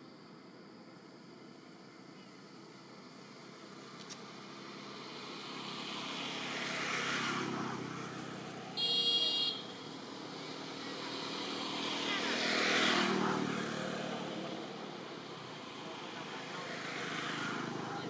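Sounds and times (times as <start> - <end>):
motor vehicle passing: 5.0 - 18.0.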